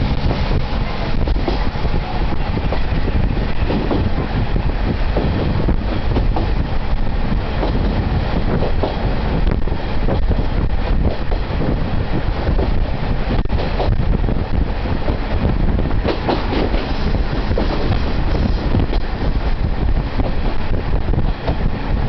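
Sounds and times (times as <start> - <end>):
diesel engine drone: 0.0 - 16.0
wheels rumbling on rails: 0.0 - 22.0.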